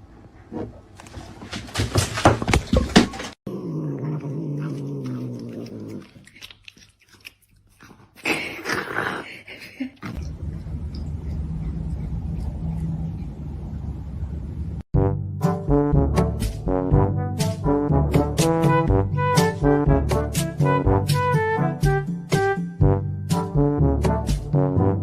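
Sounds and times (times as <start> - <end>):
cat vocalizing: 3.8 - 9.0.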